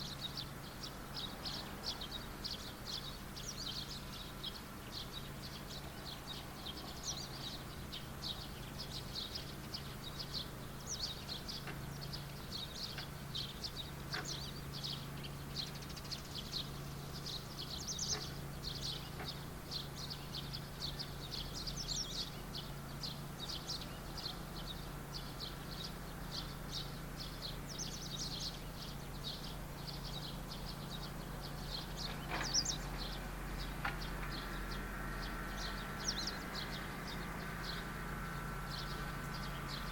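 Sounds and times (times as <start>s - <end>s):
small birds chirping: 0.0s - 39.9s
steady low hum: 0.0s - 39.9s.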